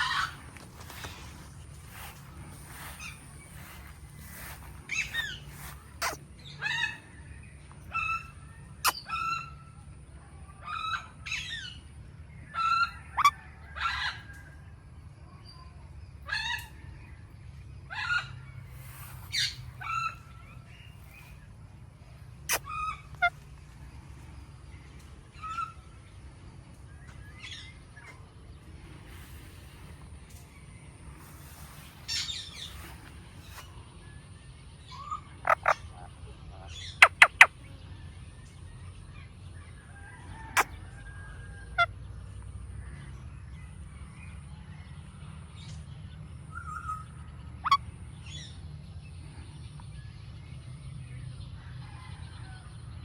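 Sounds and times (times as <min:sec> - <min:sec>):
parakeet shrill calls: 0:00.0 - 0:01.1, 0:02.1 - 0:07.0, 0:12.6 - 0:14.1, 0:17.9 - 0:20.2, 0:31.2 - 0:33.7, 0:35.0 - 0:35.8, 0:36.7 - 0:37.5.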